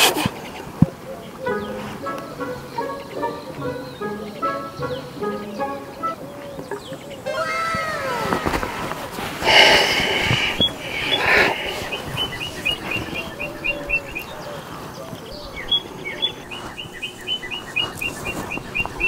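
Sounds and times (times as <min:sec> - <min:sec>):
bird chirping in quick runs: 0:10.2 - 0:19.0.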